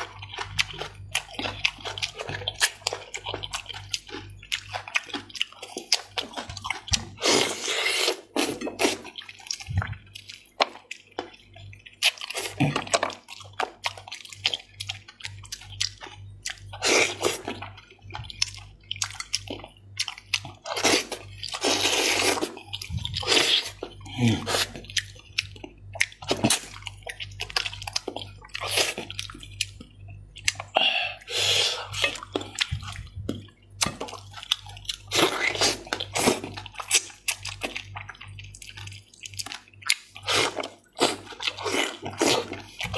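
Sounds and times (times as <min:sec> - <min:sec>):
wet chewing smacks and clicks: 0:00.0 - 0:30.8, 0:31.8 - 0:42.9
sucking slurps: 0:20.7 - 0:25.0.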